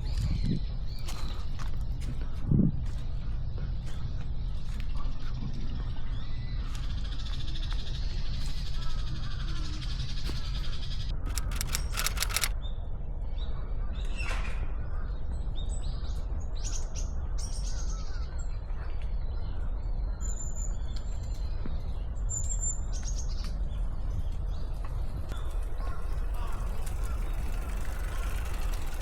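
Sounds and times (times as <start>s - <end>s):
small birds chirping: 0.0s - 12.5s, 24.2s - 29.0s.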